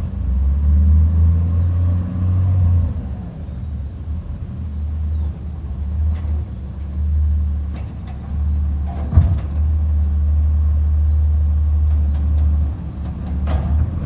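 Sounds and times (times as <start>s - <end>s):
truck engine rumbling: 0.0s - 14.0s
metallic clunk: 7.7s - 9.8s.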